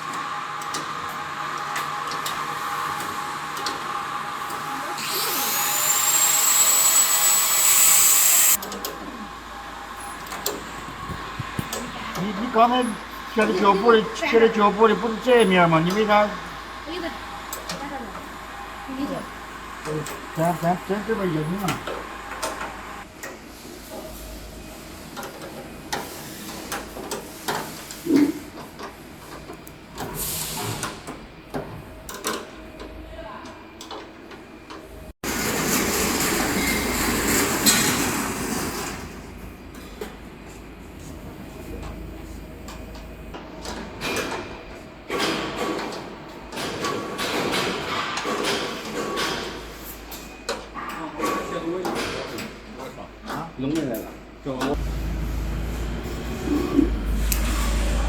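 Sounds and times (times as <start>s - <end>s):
vacuum cleaner motor whine: 0.0s - 14.0s
steady background hum: 8.1s - 30.2s.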